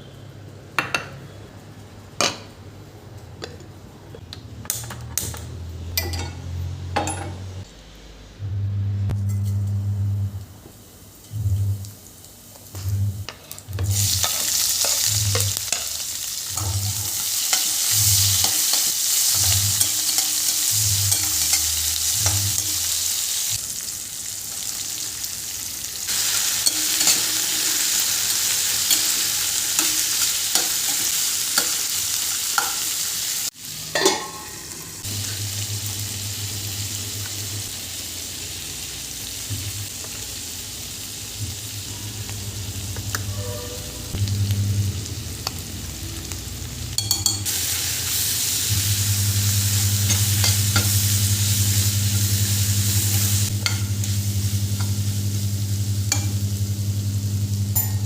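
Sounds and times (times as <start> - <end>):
food sizzling in hot oil: 10.7 - 58.0.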